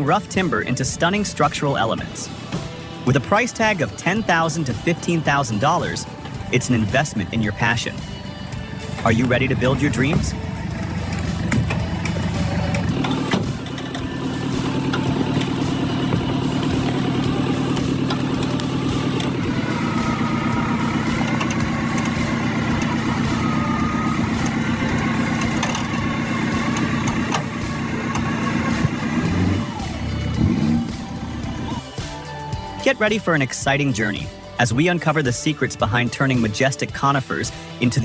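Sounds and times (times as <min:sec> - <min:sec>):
motor humming: 0:07.9 - 0:32.0.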